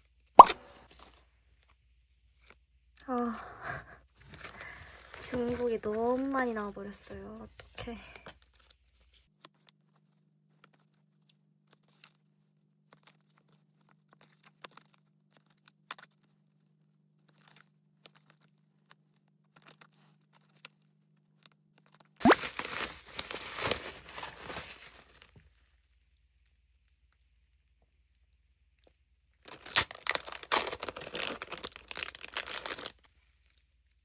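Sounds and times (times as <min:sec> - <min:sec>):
plastic packaging crinkling: 0:04.2 - 0:08.7, 0:22.2 - 0:25.6, 0:29.4 - 0:33.6
wrapper ripping open: 0:22.2 - 0:25.3, 0:29.4 - 0:33.6.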